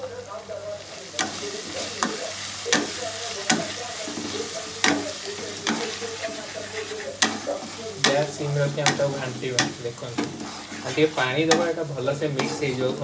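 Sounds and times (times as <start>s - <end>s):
masala sizzling in oil: 0.0s - 13.0s
wooden spatula scraping pan: 3.5s - 13.0s.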